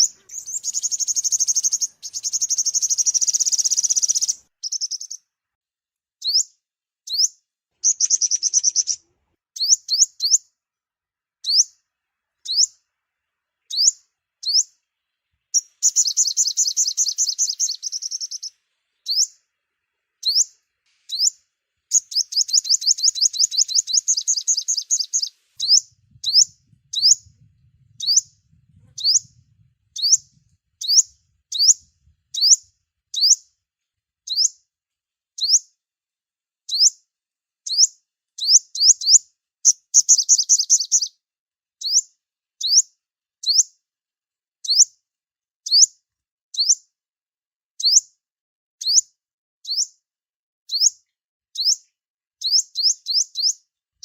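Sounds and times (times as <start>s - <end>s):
sunbird chirps and trills: 0.0s - 5.3s, 6.2s - 9.0s, 9.6s - 10.5s, 11.4s - 12.9s, 13.5s - 33.5s, 34.2s - 34.6s, 35.3s - 35.7s, 36.6s - 37.0s, 37.6s - 41.2s, 41.8s - 43.7s, 46.6s - 46.8s, 48.8s - 50.0s, 51.6s - 53.8s.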